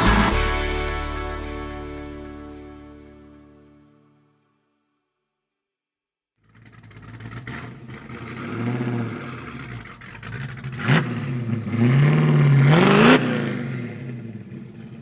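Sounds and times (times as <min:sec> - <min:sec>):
car engine revving: 0:06.4 - 0:15.0.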